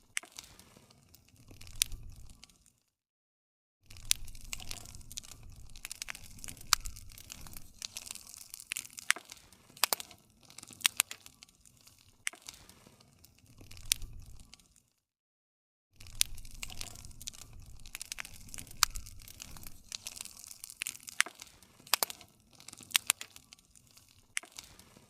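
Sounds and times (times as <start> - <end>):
campfire crackling: 0.0 - 2.7, 3.9 - 14.8, 16.0 - 25.0.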